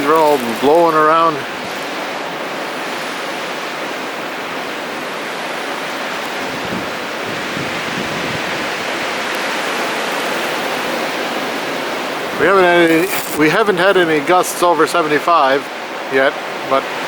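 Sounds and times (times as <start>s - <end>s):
wind buffeting microphone: 0.0s - 3.3s, 6.3s - 14.5s
storm wind rushing through trees: 0.0s - 17.0s.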